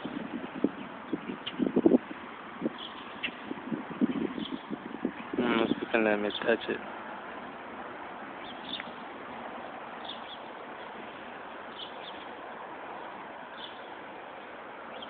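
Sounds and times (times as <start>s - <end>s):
bird chirping: 2.8s - 6.6s, 8.4s - 9.1s, 10.0s - 15.0s.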